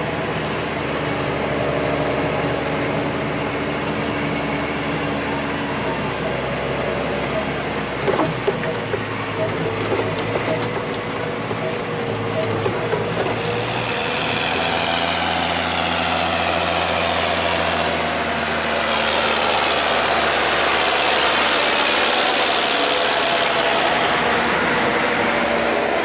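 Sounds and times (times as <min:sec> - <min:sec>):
combine harvester working: 0:00.0 - 0:26.0.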